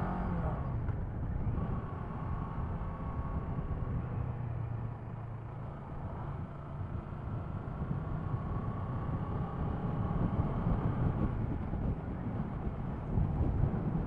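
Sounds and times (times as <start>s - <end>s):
wind rushing over microphone: 6.0s - 14.0s.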